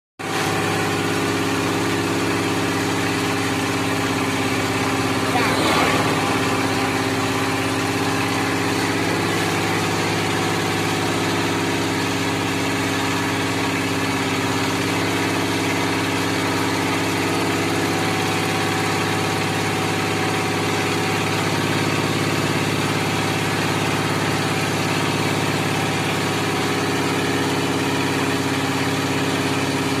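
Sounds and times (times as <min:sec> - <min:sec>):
hydraulic power unit humming: 0:00.3 - 0:19.5
faint high tone: 0:05.2 - 0:07.3.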